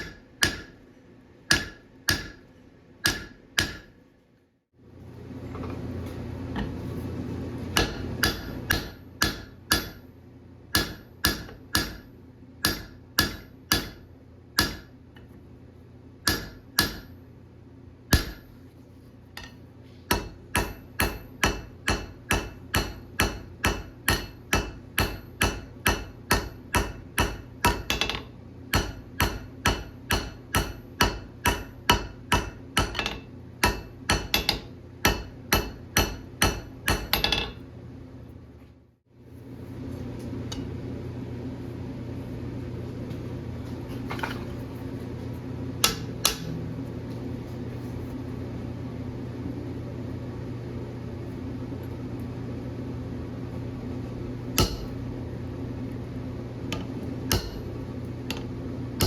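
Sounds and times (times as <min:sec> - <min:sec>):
forging hammer ringing on anvil: 0:00.0 - 0:00.8, 0:01.5 - 0:02.4, 0:03.0 - 0:03.9, 0:07.8 - 0:10.1, 0:10.7 - 0:14.0, 0:14.6 - 0:15.0, 0:16.2 - 0:17.1, 0:18.1 - 0:18.6, 0:20.1 - 0:37.6, 0:54.6 - 0:55.1, 0:57.3 - 0:57.8.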